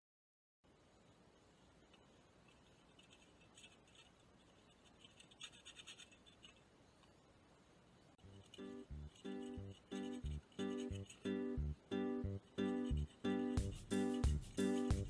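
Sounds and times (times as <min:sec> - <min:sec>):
faint scratching: 0:01.0 - 0:11.6, 0:12.4 - 0:15.0
acoustic guitar music: 0:08.3 - 0:15.0.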